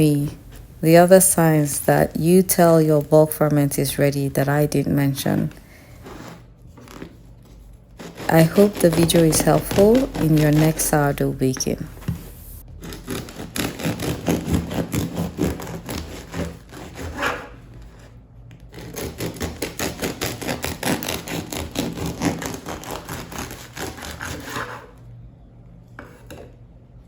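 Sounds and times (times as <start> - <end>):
bread knife sawing through crust: 5.8 - 7.2, 8.0 - 11.4, 12.8 - 25.0.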